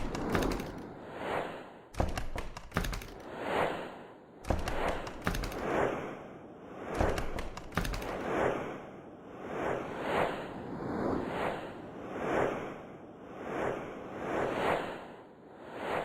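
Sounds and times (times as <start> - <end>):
rushing sand: 3.2 - 12.8.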